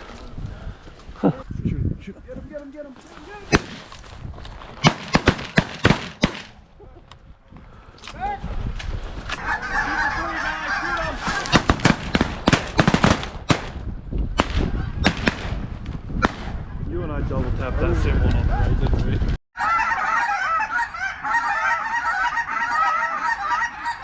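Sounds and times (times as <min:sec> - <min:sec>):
shotgun blasts: 0:03.5 - 0:04.0, 0:04.8 - 0:06.6, 0:11.3 - 0:16.6
geese honking: 0:19.6 - 0:24.0.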